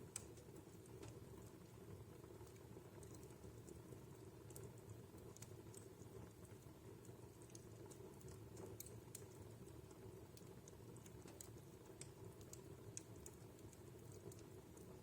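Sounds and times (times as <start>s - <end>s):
fireplace crackling faintly: 0.0s - 15.0s.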